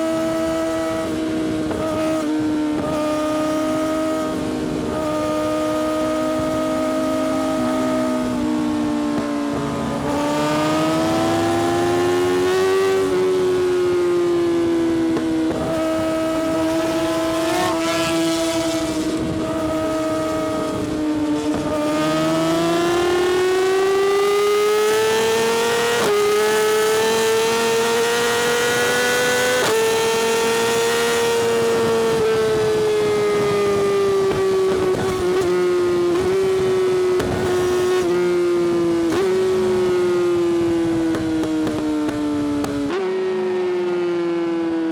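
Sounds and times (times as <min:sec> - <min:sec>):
motorcycle engine at high revs: 0:00.0 - 0:44.9.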